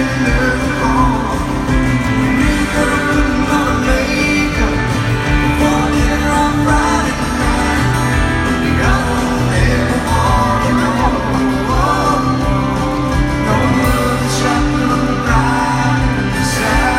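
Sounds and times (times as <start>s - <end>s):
live country band playing: 0.0s - 16.9s
person singing lead vocal: 0.0s - 16.9s.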